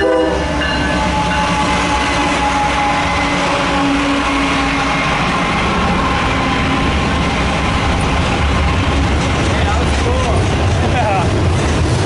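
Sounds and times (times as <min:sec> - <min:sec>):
train horn chord: 0:00.0 - 0:05.5
freight train rumbling past: 0:00.0 - 0:12.0.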